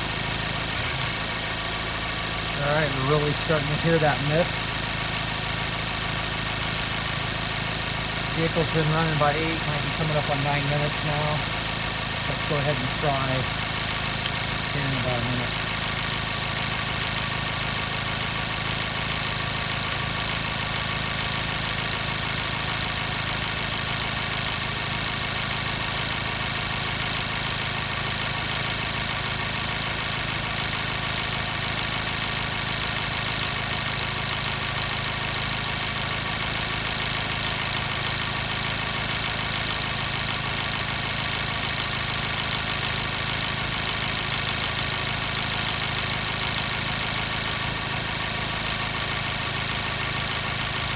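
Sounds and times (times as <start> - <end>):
car engine idling with misfire: 0.0 - 50.9.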